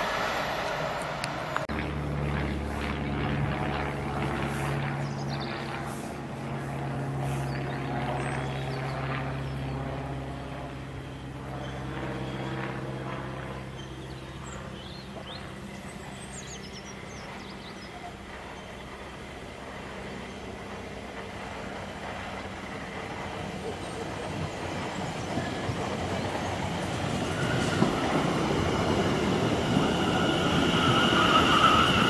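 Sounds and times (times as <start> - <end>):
train droning: 0.0 - 2.8, 21.2 - 32.0.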